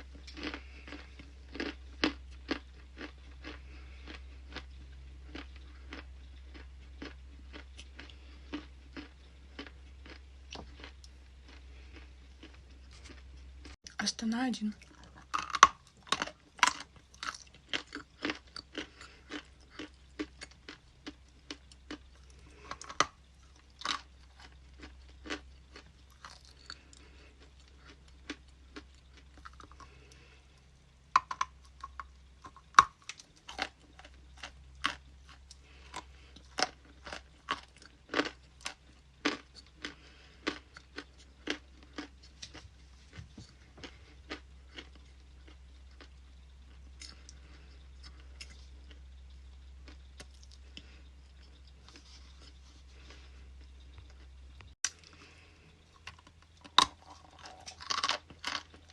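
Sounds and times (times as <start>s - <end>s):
ice crunching being chewed: 0.0s - 14.0s, 14.8s - 30.6s, 31.2s - 58.9s.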